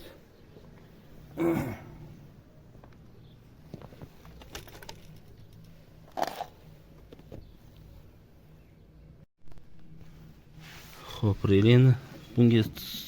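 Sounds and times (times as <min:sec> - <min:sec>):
small parts clicking and rattling: 0:04.2 - 0:06.6.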